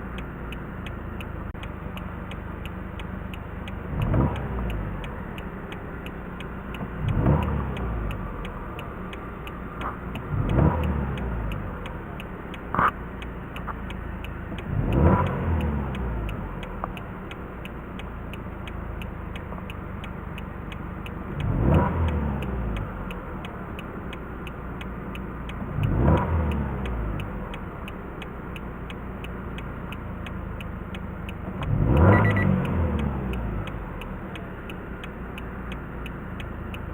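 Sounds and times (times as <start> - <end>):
car engine idling and revving: 0.0 - 36.9
short click: 31.3 - 33.8.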